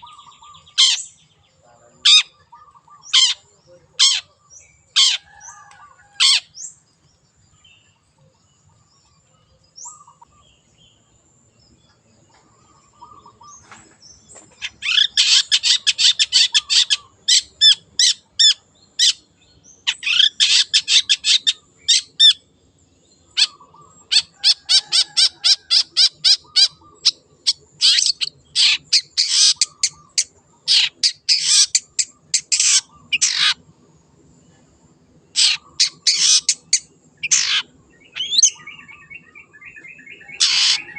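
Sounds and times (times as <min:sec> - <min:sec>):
bird chattering song: 0:00.0 - 0:34.6, 0:35.3 - 0:40.9
faint short bird calls: 0:12.3 - 0:19.2, 0:35.4 - 0:40.9.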